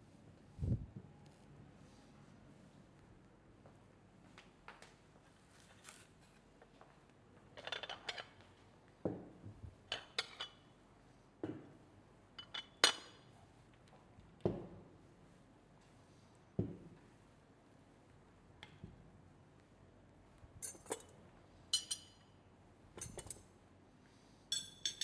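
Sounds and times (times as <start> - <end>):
cutlery and glassware clinking: 20.6 - 21.2, 21.8 - 22.2, 23.0 - 23.4, 24.5 - 25.0.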